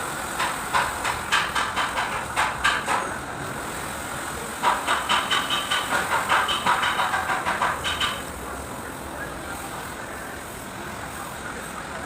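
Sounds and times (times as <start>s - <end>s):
sharp rhythmic knocking: 0.4s - 3.1s, 4.6s - 8.2s.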